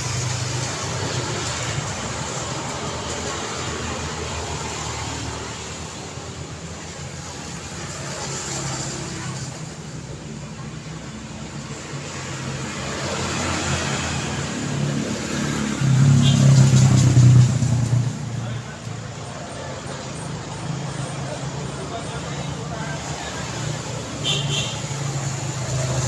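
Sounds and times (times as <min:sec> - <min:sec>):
road traffic passing: 0:00.0 - 0:26.0.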